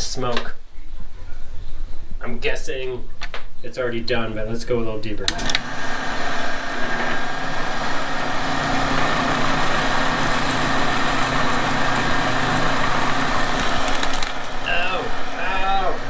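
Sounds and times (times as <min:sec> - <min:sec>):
milling machine hum and whine: 0:05.3 - 0:16.0.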